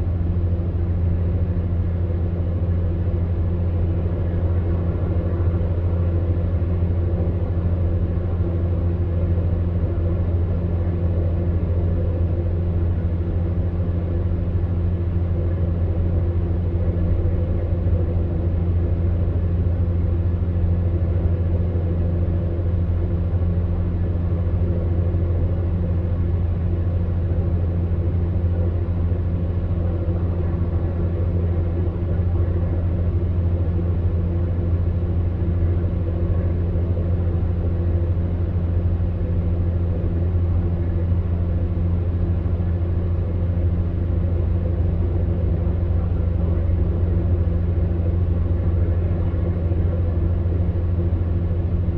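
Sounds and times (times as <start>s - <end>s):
fan heater humming: 0.0s - 51.9s.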